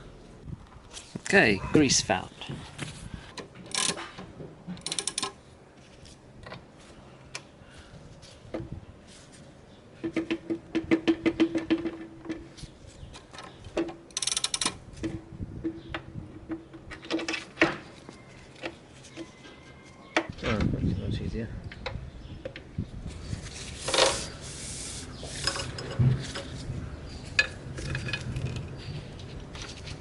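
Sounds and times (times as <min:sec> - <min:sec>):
metal clicks and rattles: 0:03.4 - 0:04.2, 0:04.8 - 0:05.4, 0:13.2 - 0:15.8, 0:27.3 - 0:30.0.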